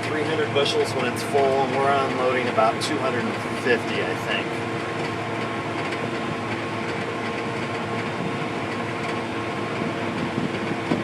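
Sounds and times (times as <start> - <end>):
combine harvester running: 0.0 - 11.0.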